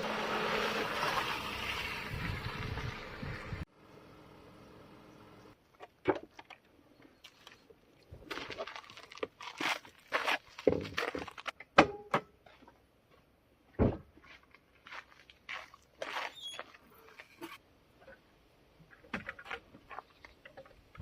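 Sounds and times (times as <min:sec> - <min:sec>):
knocks thunks and scrapes: 0:13.7 - 0:14.4.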